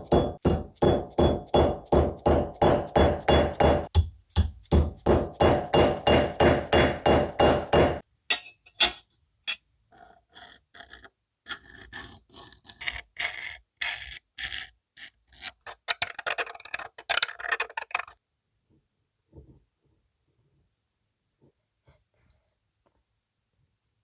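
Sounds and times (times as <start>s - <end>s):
hammer striking metal: 0.0s - 9.0s.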